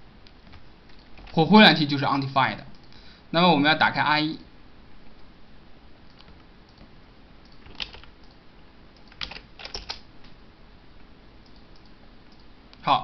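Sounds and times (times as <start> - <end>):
keyboard keystroke clicks: 6.1 - 8.4.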